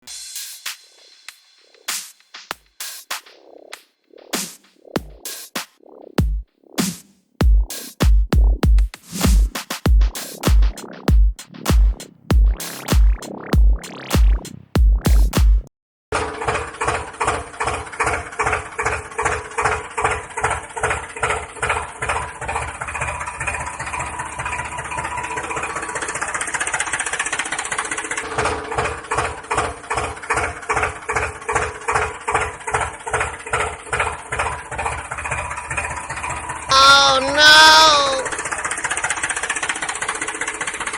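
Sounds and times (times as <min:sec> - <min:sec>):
tractor engine chugging: 0:16.2 - 0:28.2.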